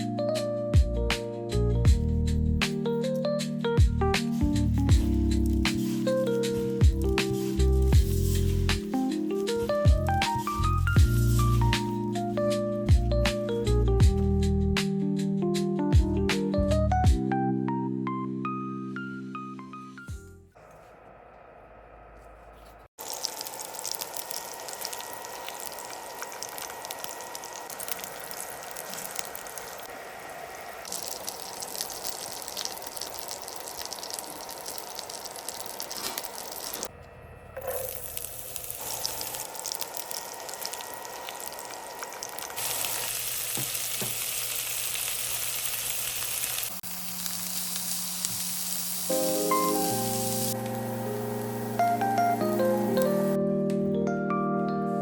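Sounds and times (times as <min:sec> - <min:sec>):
food sizzling in oil: 0:05.0 - 0:12.4, 0:23.0 - 0:36.9, 0:37.7 - 0:53.4.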